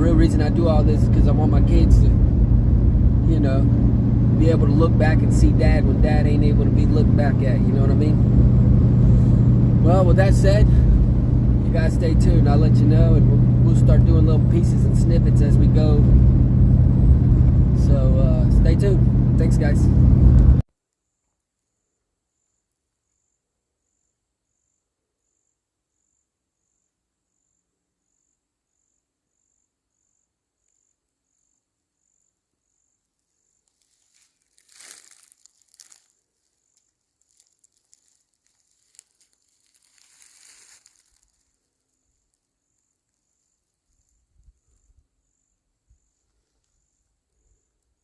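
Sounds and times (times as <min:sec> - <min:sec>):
high insect chirp: 0:21.0 - 0:48.0
rustling: 0:33.1 - 0:45.0.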